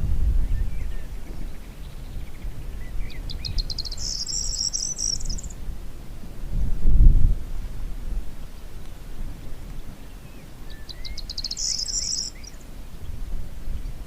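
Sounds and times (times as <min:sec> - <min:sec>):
low wind rumble: 0:00.0 - 0:14.0
songbird chirping and trilling: 0:00.4 - 0:05.6, 0:08.4 - 0:14.0.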